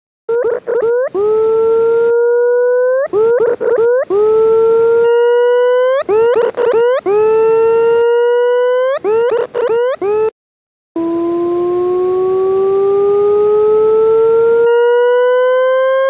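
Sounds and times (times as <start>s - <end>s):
quick upward electronic chirps: 0.3s - 10.4s
rising electronic tone: 0.3s - 10.4s, 11.0s - 16.0s.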